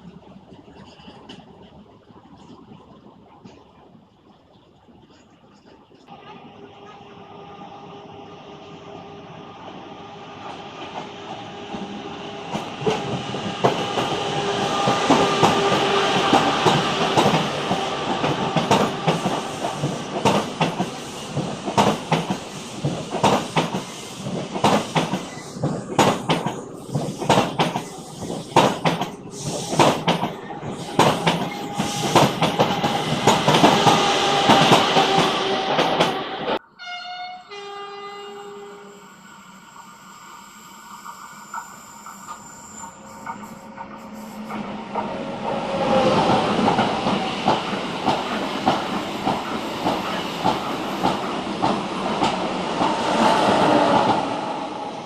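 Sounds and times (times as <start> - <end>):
train wheels clicking over rail joints: 10.8 - 36.3, 41.5 - 54.4.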